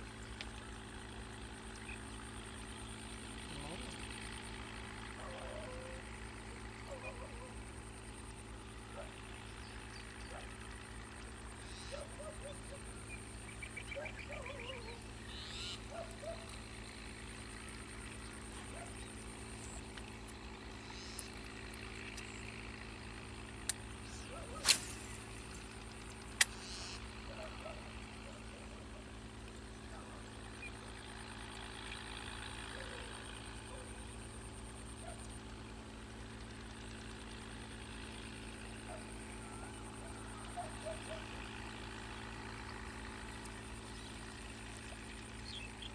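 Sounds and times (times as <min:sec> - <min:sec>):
steady low hum: 0:00.0 - 0:45.9
short animal calls: 0:14.0 - 0:16.4
high thin buzz: 0:24.0 - 0:25.7, 0:26.4 - 0:27.0
sharp clicks: 0:26.1 - 0:26.8.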